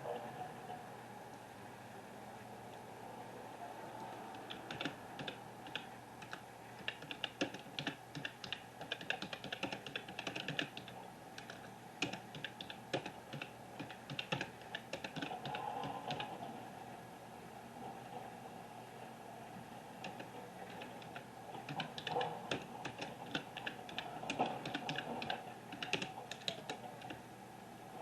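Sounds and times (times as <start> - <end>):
steady low hum: 0.0 - 28.0
rapid light clicking: 4.0 - 16.4, 20.0 - 27.2.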